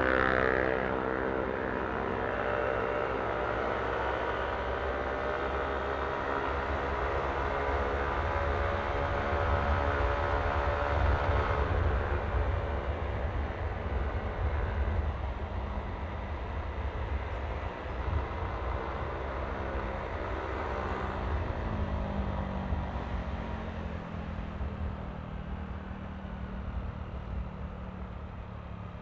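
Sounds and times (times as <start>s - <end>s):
road noise: 0.0s - 29.0s
wind rumble on microphone: 6.0s - 28.4s.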